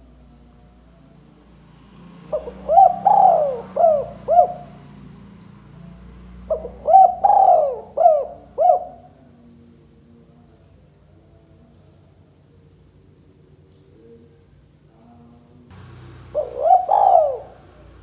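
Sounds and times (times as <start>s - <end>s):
dove cooing: 2.3s - 4.8s, 6.5s - 9.1s, 15.8s - 18.0s.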